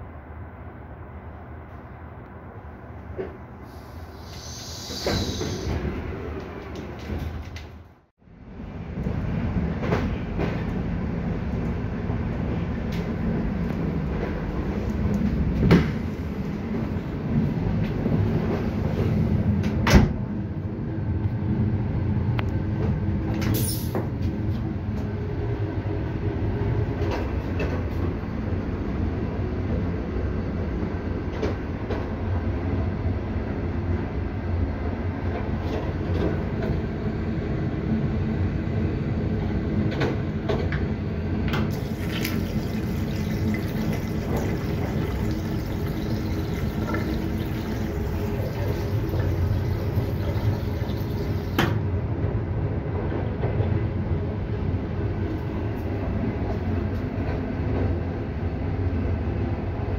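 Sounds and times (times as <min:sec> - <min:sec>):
train rumbling: 0:00.0 - 0:59.9
short hiss: 0:03.6 - 0:05.7.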